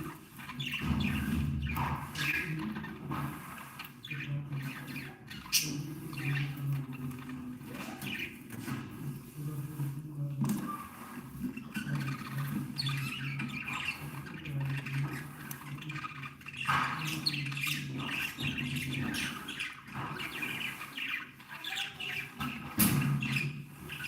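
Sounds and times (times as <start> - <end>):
budgerigars chirping: 0.0 - 8.8, 10.9 - 24.0
bird squawks: 11.8 - 24.0.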